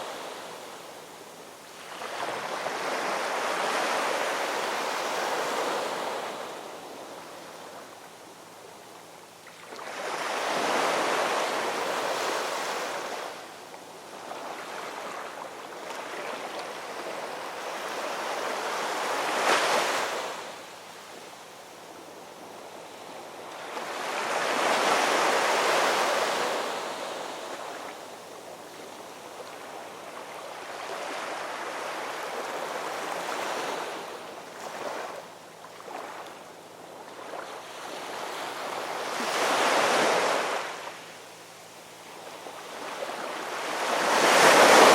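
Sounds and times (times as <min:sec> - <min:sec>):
ocean waves breaking: 0:42.8 - 0:44.9.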